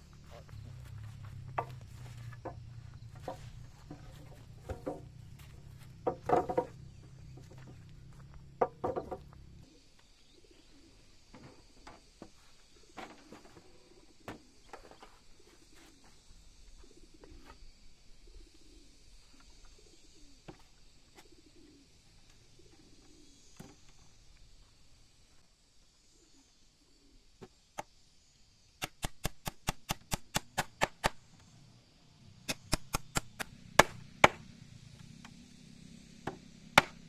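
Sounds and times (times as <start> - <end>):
dove-like cooing: 0.0 - 12.0, 12.7 - 24.2
chickens clucking: 0.1 - 9.6.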